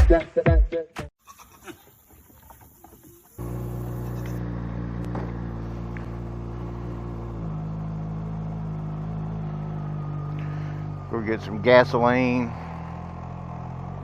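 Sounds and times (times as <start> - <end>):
motorcycle engine running: 3.3 - 14.0.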